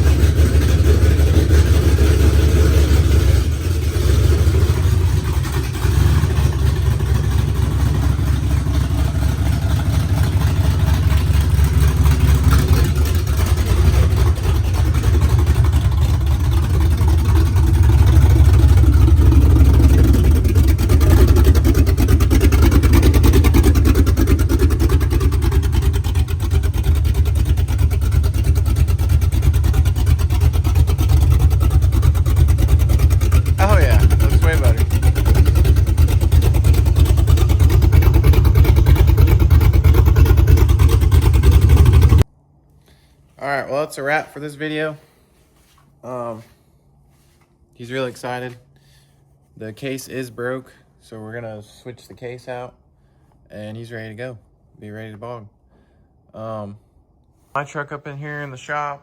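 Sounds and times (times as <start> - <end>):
pickup truck engine revving: 0.0 - 42.3.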